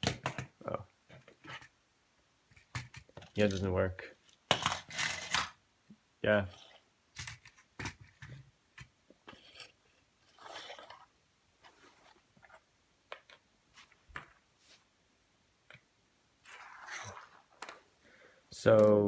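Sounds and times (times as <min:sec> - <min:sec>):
soft rustles: 0:09.3 - 0:12.7, 0:13.7 - 0:15.0.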